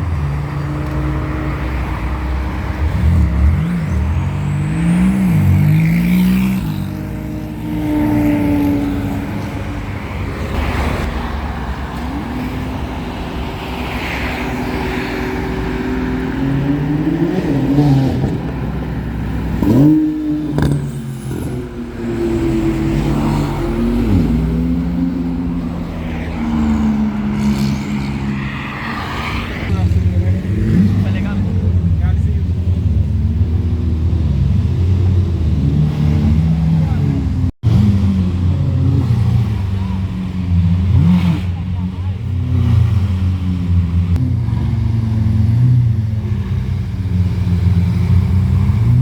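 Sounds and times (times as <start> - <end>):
sports car engine revving: 15.7 - 28.8.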